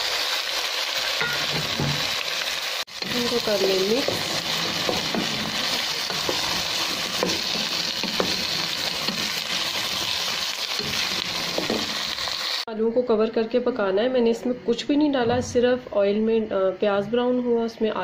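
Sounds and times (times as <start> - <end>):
potatoes sizzling in oil: 0.0 - 12.7.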